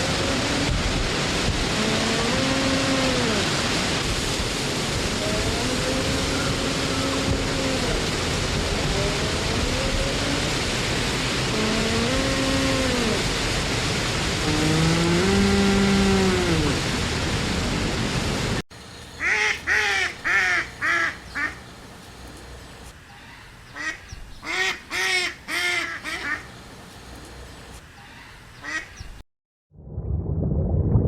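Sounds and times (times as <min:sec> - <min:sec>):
steady hiss: 0:18.7 - 0:28.8
goose honking: 0:19.2 - 0:21.7, 0:23.2 - 0:26.6.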